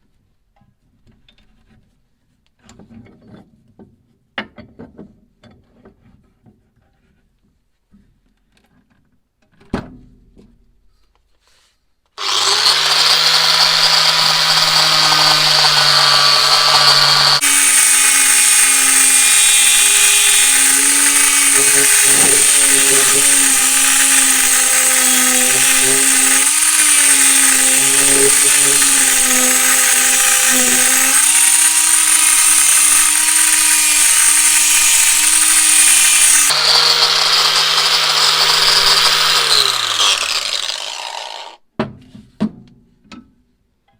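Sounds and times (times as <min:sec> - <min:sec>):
electric power tool motor: 0:12.2 - 0:41.6.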